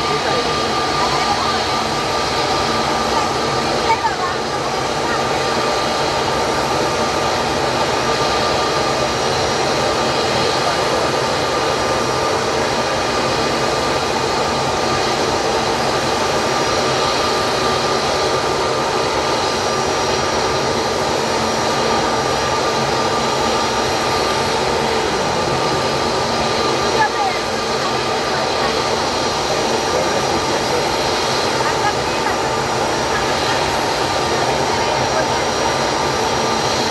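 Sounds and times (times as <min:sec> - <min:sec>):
jet engines running: 0:00.0 - 0:36.9.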